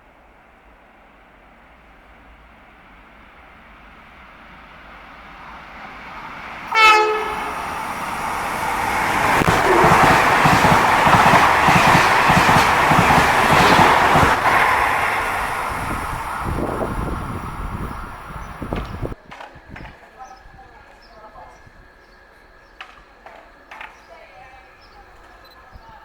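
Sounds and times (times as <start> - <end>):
train wheels clicking over rail joints: 4.7 - 20.1
train horn blast: 6.7 - 8.1, 9.1 - 10.8.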